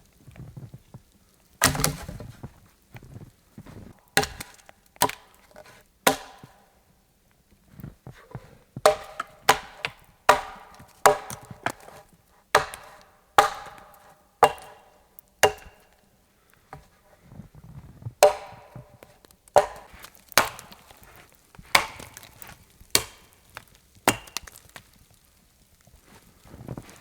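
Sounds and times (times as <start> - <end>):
axe chopping into a log: 1.6 - 2.2, 4.1 - 6.7, 8.8 - 12.0, 12.6 - 16.0, 18.2 - 24.6.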